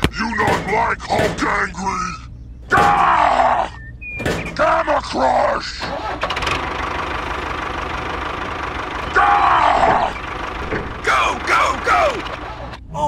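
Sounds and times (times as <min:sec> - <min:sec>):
high pitch-bending cries: 0:01.9 - 0:04.2, 0:09.0 - 0:10.4, 0:11.0 - 0:12.7
small engine running: 0:05.8 - 0:12.8.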